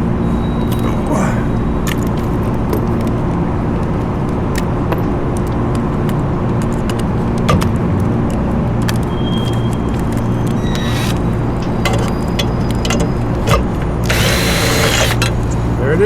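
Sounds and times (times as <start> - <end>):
low mechanical drone: 0.0 - 16.0
metal tools clinking: 9.3 - 15.6.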